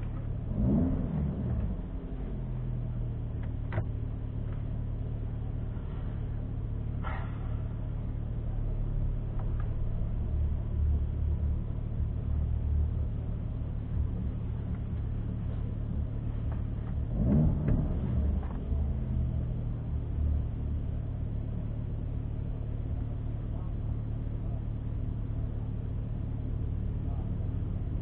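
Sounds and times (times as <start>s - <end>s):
engine revving: 0.0s - 2.8s, 13.9s - 20.6s
car engine idling: 0.0s - 28.0s.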